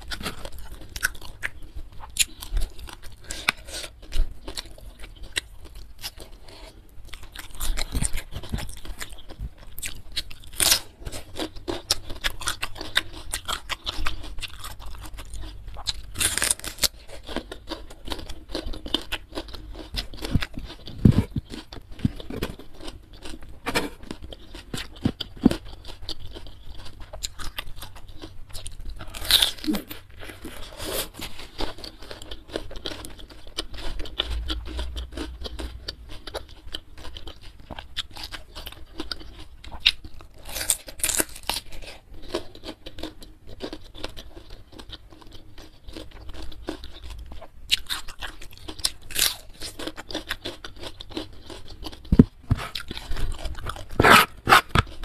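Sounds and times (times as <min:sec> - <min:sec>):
crunchy chewing of a vegetable: 0:00.0 - 0:55.0
wet mouth sounds: 0:52.1 - 0:55.0.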